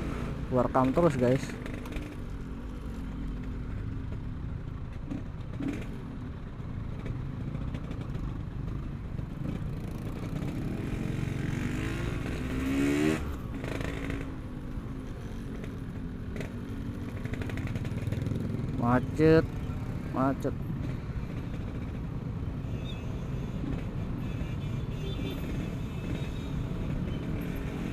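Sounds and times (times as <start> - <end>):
motorcycle engine revving: 0.0 - 4.0, 9.2 - 14.6, 15.4 - 22.4.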